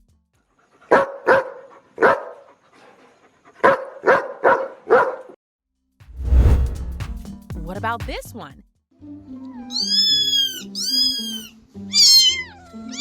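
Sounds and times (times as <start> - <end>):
dog barking: 0.9 - 2.6, 3.6 - 5.4.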